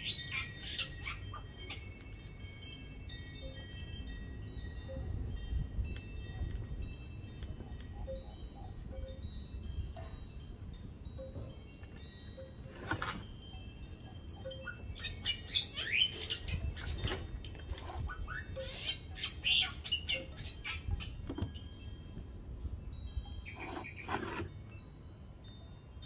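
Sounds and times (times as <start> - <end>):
birds chirping: 0.0 - 5.1, 6.1 - 12.7, 13.4 - 26.0
knife scraping coconut husk: 23.6 - 24.6.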